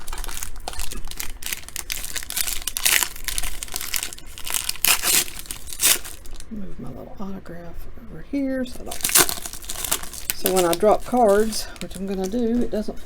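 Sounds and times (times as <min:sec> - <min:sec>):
foil wrapper crinkling: 0:00.0 - 0:06.5, 0:08.8 - 0:12.9.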